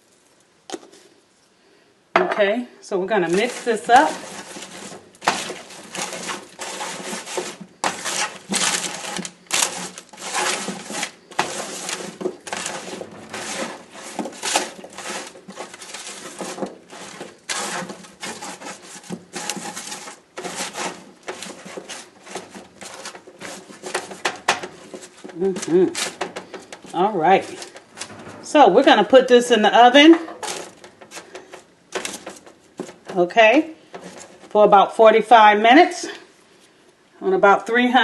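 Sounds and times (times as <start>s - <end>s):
vegetables tossed on baking pan: 3.1s - 29.1s.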